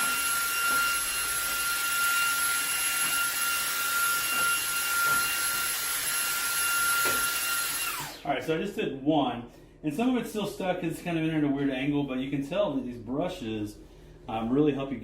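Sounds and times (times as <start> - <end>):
vacuum cleaner running: 0.0 - 8.4.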